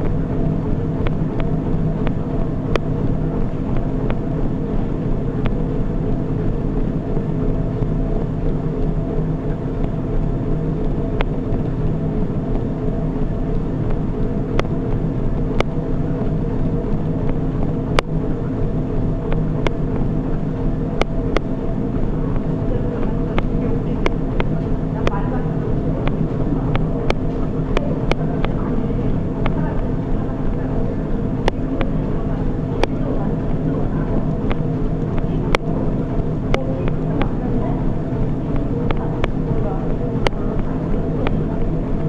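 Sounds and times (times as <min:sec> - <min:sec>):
treadmill humming: 0:00.0 - 0:42.0
sharp clicks: 0:14.6 - 0:18.1, 0:32.8 - 0:42.0.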